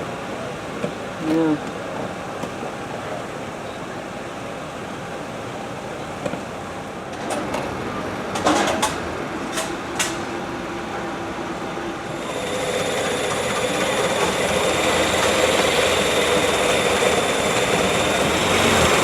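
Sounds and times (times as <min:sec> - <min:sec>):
street traffic: 0:06.1 - 0:19.0.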